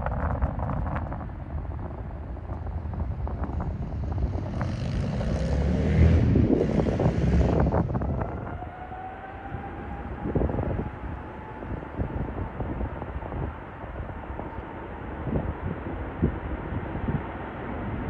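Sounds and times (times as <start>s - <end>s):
wind rumble on microphone: 0.0s - 18.0s
jet airliner passing: 2.2s - 18.0s.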